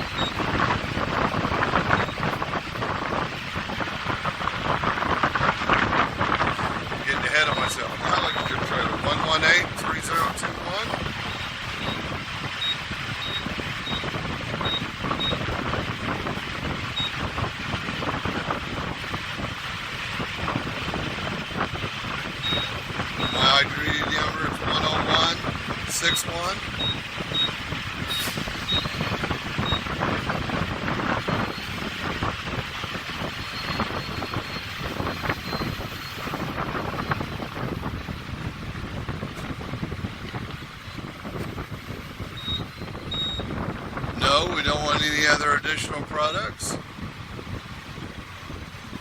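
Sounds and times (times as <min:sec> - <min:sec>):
engine and wind rumble: 0:00.0 - 0:49.0
short high keypad beeps: 0:42.4 - 0:43.5.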